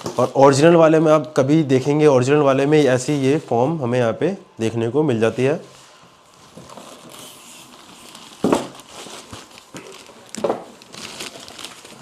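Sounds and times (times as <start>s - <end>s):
packaging rustling and crinkling: 6.2s - 12.0s.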